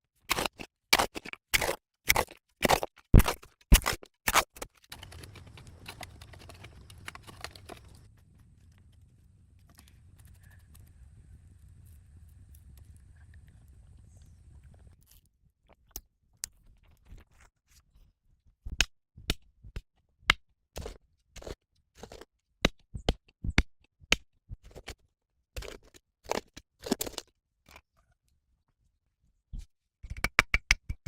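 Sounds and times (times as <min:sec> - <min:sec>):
sharp knocks and clicks: 0:30.0 - 0:31.0.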